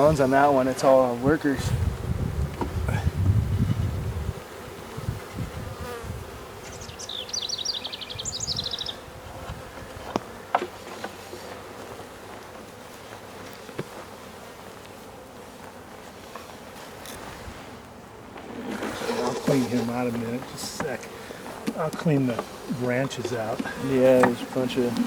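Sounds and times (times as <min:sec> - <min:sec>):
honeybee swarm buzzing: 0:00.0 - 0:25.0.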